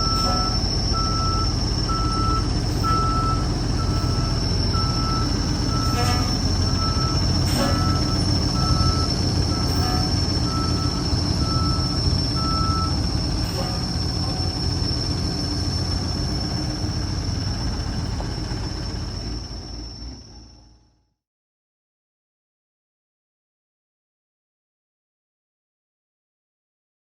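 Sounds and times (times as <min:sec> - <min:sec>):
short beeps: 0:00.0 - 0:13.0
truck engine running with whine: 0:00.0 - 0:21.2.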